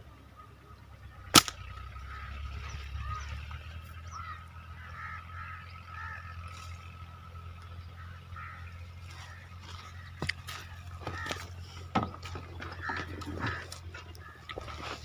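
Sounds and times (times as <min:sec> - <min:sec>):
birds calling and chirping: 0:00.0 - 0:15.0
slingshot rubber bands snapping: 0:01.4 - 0:01.6.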